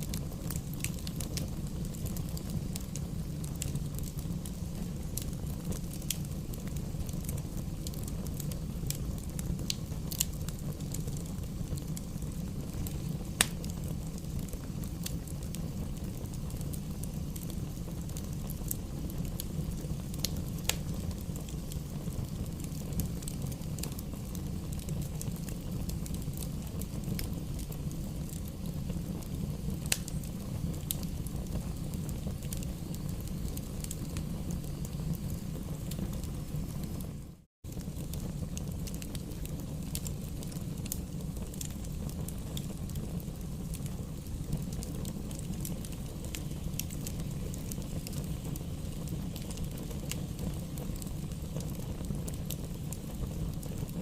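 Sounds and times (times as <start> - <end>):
logs crackling and popping: 0.0 - 54.0
low rumble of fire flames: 0.0 - 54.0.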